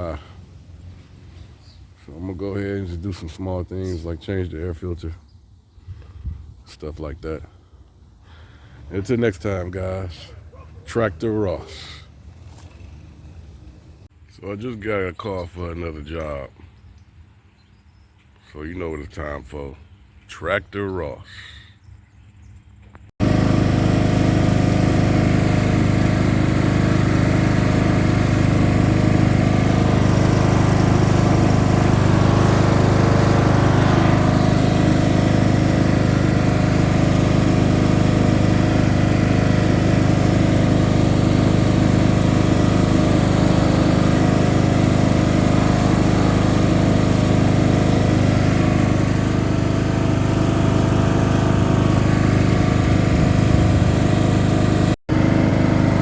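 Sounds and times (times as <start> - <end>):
tractor engine running steadily: 0.0 - 2.9, 23.2 - 56.0.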